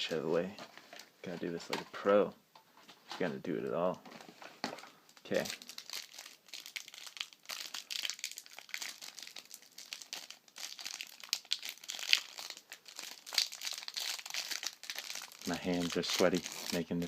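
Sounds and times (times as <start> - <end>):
plastic wrapper crinkling: 3.9 - 17.0
plastic wrapper tearing: 4.7 - 17.0.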